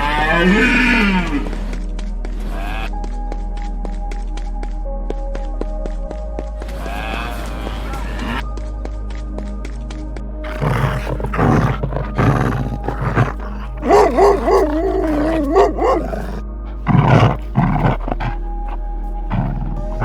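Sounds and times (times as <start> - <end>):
background music: 10.4 - 20.0
animal calls: 10.5 - 20.0.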